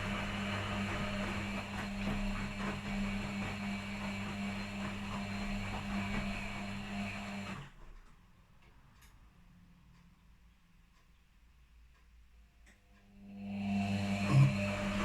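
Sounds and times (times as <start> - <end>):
washing machine running: 0.0 - 7.8, 13.2 - 15.0.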